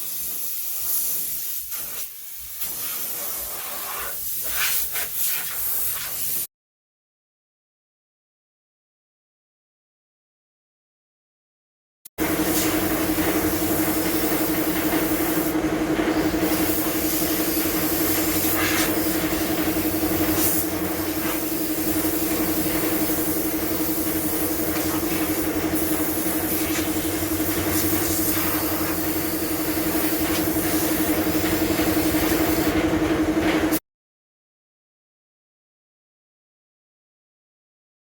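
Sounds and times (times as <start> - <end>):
pressure washer motor hum: 12.2 - 33.8.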